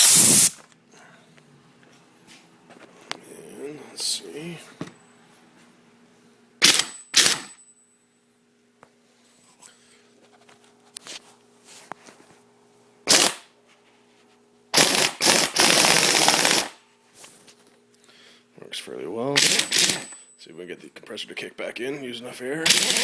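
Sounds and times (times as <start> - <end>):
pneumatic impact wrench bursts: 0.0 - 0.6, 6.6 - 7.6, 13.1 - 13.5, 14.8 - 16.8, 19.4 - 20.2, 22.6 - 23.0.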